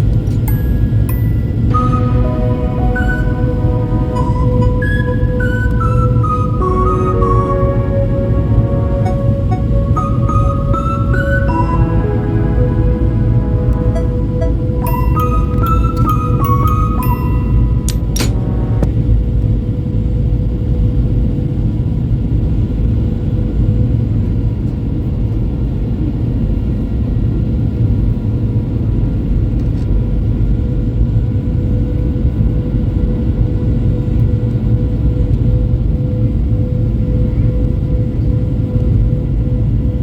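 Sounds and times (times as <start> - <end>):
constant hum: 0.0 - 26.8.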